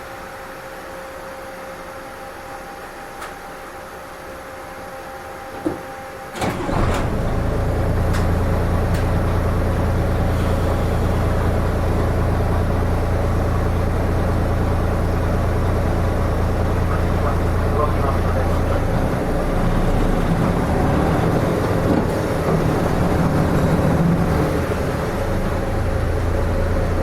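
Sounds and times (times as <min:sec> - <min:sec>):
diesel bus engine starting and idling: 0:06.3 - 0:27.0.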